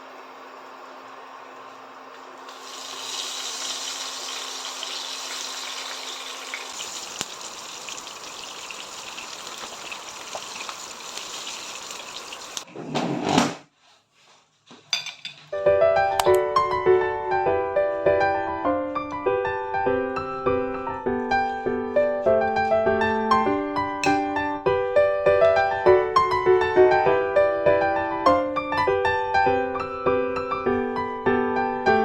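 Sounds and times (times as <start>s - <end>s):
piano music: 15.5s - 32.0s.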